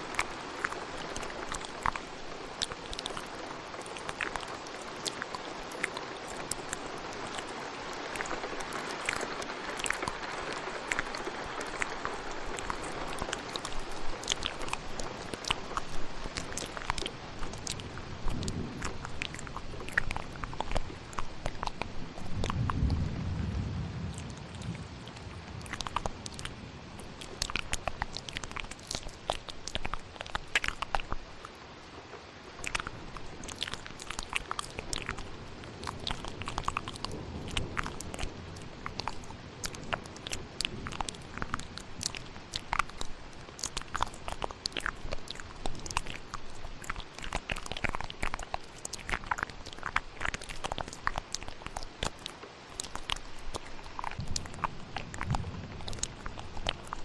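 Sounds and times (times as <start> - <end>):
wet mouth clicks and smacks: 0.0 - 23.1, 24.1 - 31.6, 32.5 - 57.0
rain hiss: 0.0 - 57.0
low rumble of thunder: 16.8 - 28.7, 54.2 - 57.0.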